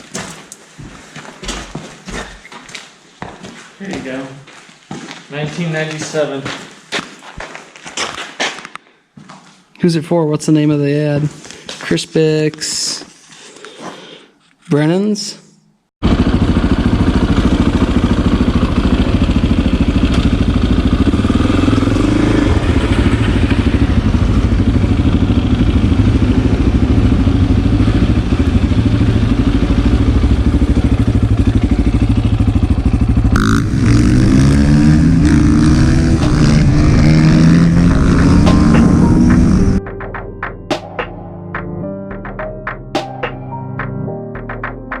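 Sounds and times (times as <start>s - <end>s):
dirt bike engine running: 16.0s - 39.8s.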